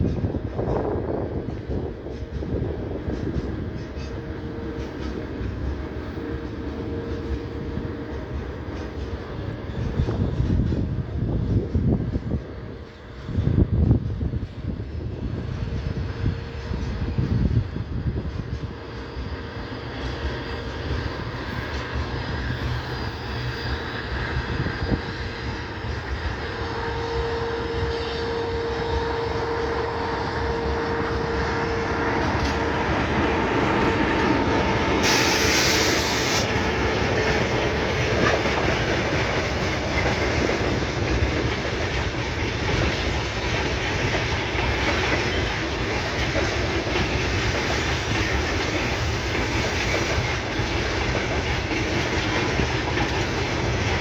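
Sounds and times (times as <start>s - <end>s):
train wheels clacking: 0.0s - 54.0s
steady whine: 19.2s - 40.0s
short high hiss: 35.0s - 36.6s.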